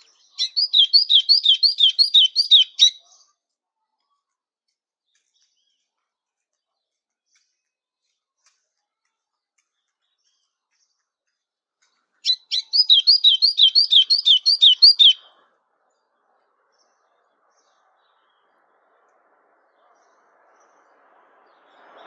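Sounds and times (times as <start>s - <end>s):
songbird whistled notes: 0.4s - 3.0s, 12.3s - 15.3s.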